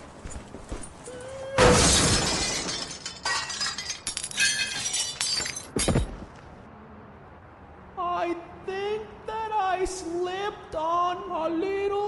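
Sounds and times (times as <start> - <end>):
glass shattering: 1.6 - 6.2.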